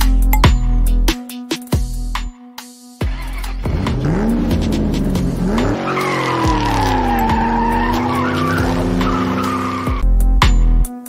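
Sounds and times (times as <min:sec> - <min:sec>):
car engine: 0:03.1 - 0:10.0
tyre squeal: 0:05.4 - 0:10.0.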